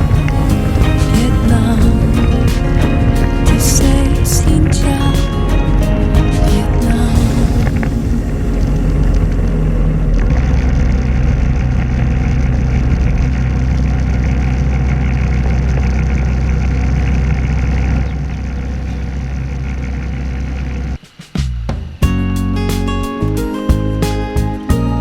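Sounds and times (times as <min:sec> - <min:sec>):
motorbike engine running: 0:00.0 - 0:16.2.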